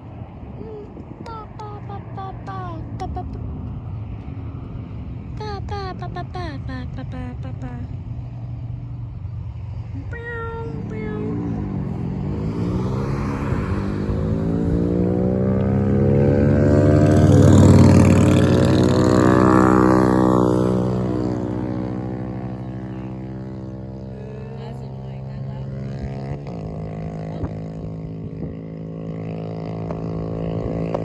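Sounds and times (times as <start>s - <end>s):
jet aircraft passing overhead: 10.5s - 23.4s.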